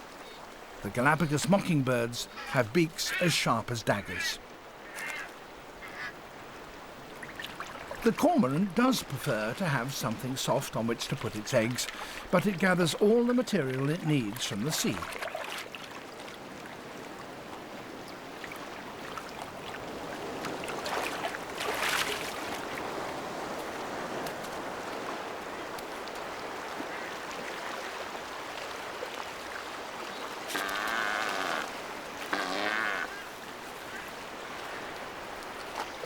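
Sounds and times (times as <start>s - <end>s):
surf on rocky shore: 0.8s - 32.4s
harsh wavering animal calls: 30.5s - 33.3s.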